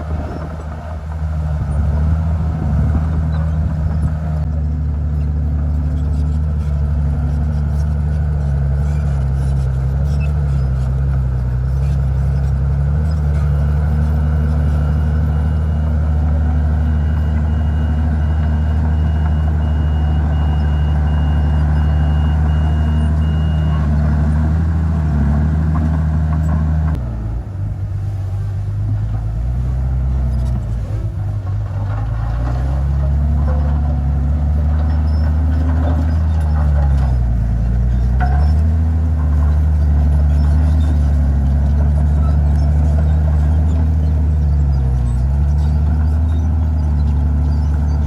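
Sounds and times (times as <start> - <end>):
bulldozer diesel engine under load: 0.0 - 48.0.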